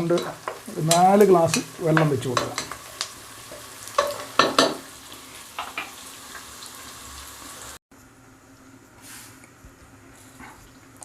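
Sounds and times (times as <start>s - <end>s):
food sizzling in a pot: 0.0s - 7.8s.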